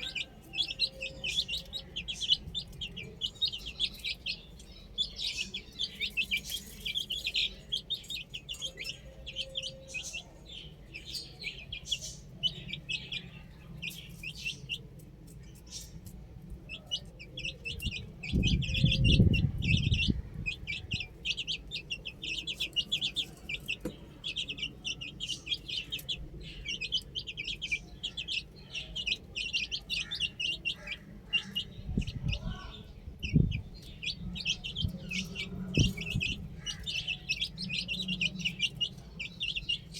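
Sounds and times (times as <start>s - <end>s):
baby chicks peeping: 0.0s - 39.9s
low rumble: 17.6s - 21.2s.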